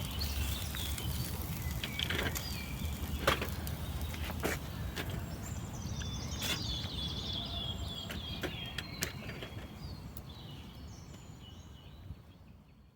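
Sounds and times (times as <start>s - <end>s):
bird chirping: 0.0s - 12.9s.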